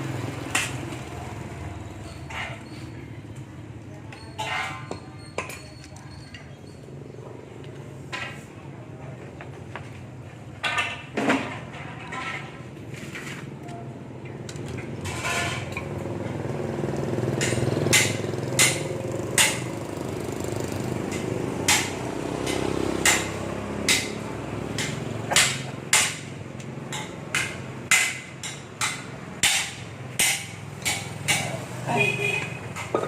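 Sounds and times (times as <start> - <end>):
hammer tapping on metal: 17.4 - 19.8, 21.0 - 31.6.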